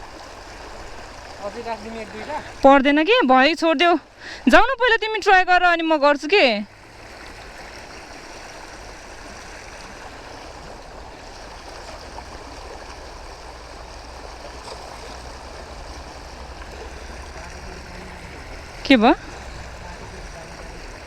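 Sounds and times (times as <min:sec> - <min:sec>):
stream flowing: 0:00.0 - 0:21.0.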